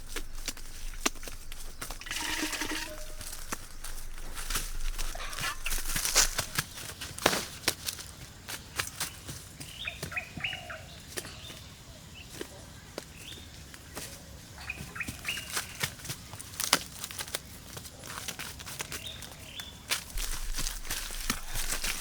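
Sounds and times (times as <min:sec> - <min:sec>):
birds whistling: 0:05.0 - 0:06.7, 0:09.6 - 0:12.3.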